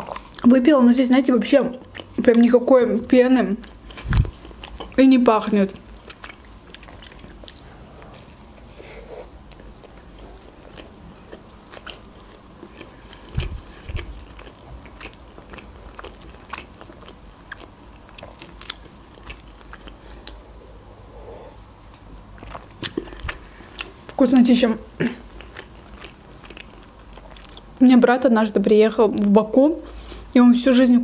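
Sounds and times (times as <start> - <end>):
biting and chewing burger: 3.6 - 20.4, 22.4 - 24.2, 25.0 - 27.8.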